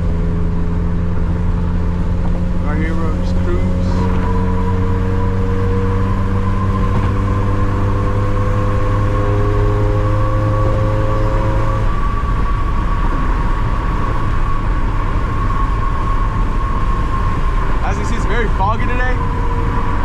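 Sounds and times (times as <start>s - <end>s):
car engine cruising: 0.0s - 20.0s
road and tyre rumble: 0.0s - 20.0s
thin steady whine: 11.7s - 20.0s.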